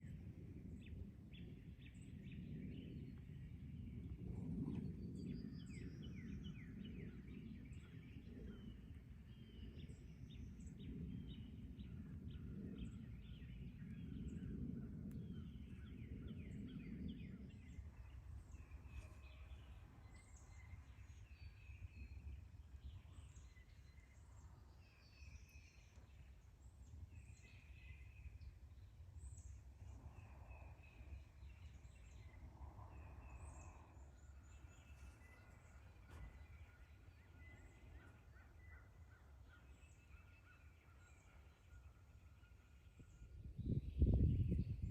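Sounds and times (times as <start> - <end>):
songbirds singing: 0.0 - 44.9
low rumbling noise: 25.8 - 38.3.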